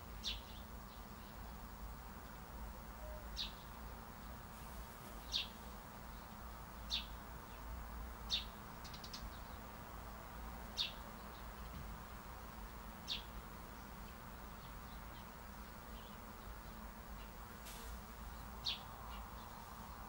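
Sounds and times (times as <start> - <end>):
faint background noise: 0.0 - 20.0
bird chirping: 13.1 - 17.4, 18.3 - 20.0.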